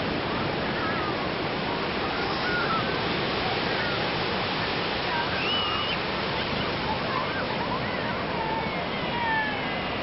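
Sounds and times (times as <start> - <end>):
sea waves washing on beach: 0.0 - 10.0.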